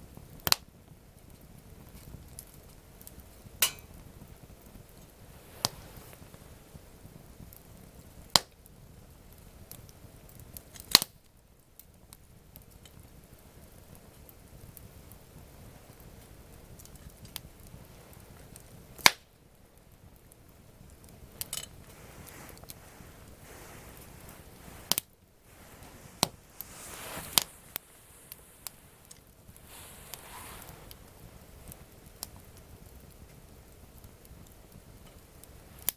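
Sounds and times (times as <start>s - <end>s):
campfire crackling: 0.0s - 35.9s
soft rush of flame: 0.0s - 35.9s
loud sharp pop of fire: 3.6s - 4.2s, 10.8s - 11.2s, 19.0s - 19.4s.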